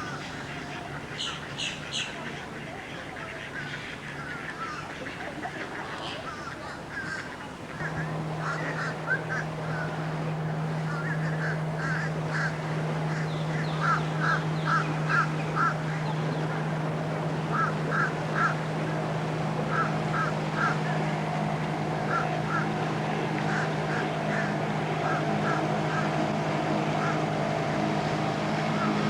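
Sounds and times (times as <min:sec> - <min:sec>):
birds honking calls: 0:07.1 - 0:29.0
steady low hum: 0:07.6 - 0:29.0.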